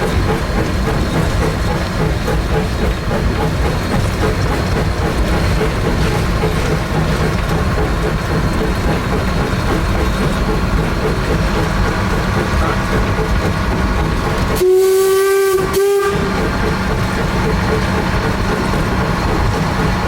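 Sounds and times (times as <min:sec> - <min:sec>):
steam locomotive running: 0:00.0 - 0:20.0
steam whistle blasts: 0:14.6 - 0:16.4.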